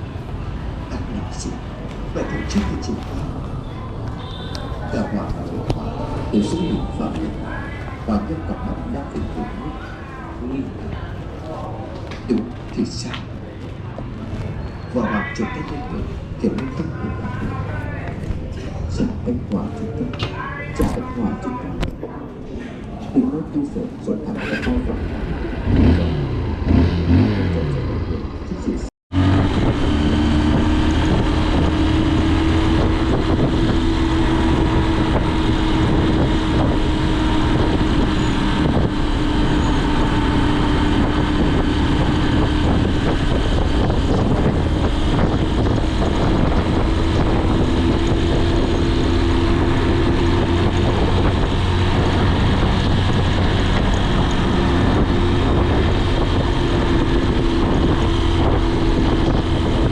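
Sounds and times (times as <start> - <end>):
wind and road noise: 0.0 - 59.9
motorcycle engine revving: 24.6 - 28.4, 29.1 - 59.9.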